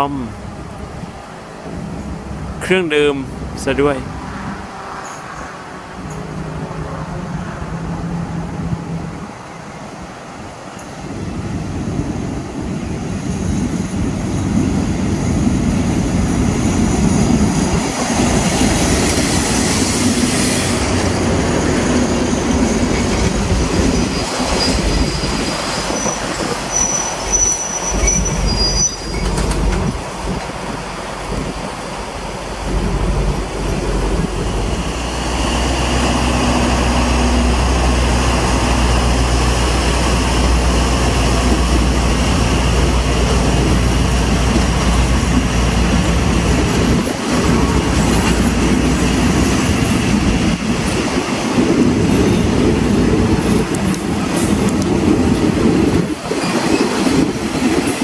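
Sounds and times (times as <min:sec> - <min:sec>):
train rumbling: 0:00.0 - 0:58.0
locomotive engine drone: 0:00.2 - 0:56.1
high brake squeals: 0:23.9 - 0:29.5.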